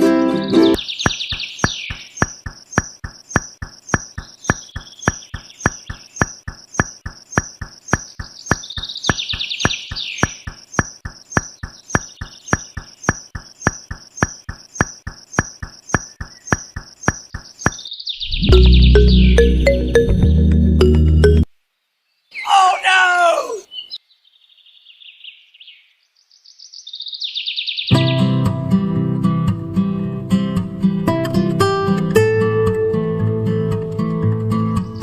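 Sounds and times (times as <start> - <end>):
high chirping trills: 0.4 - 21.5
clicking beat: 1.0 - 21.5.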